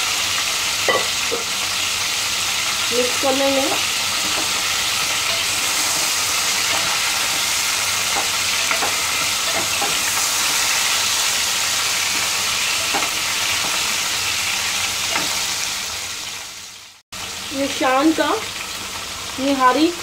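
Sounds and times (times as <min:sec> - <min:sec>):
chicken sizzling in hot oil: 0:00.0 - 0:20.0
wooden spoon scraping a pot: 0:03.7 - 0:11.2.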